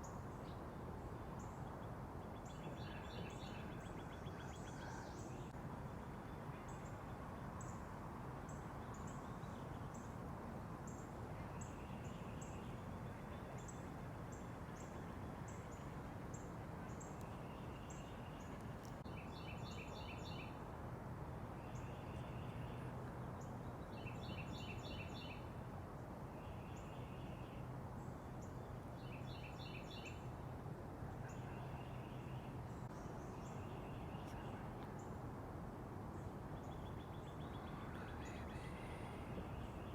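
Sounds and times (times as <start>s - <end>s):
songbirds chip notes: 36.2s - 39.9s.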